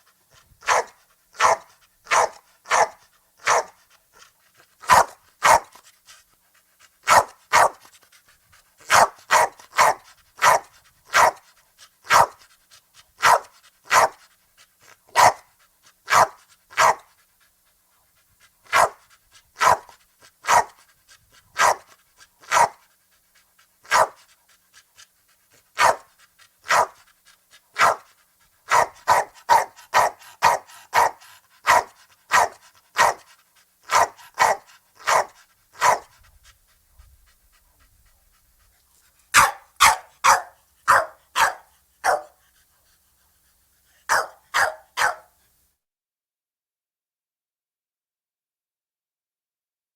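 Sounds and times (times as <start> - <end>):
small dog yapping: 39.3 - 42.3, 44.1 - 45.3.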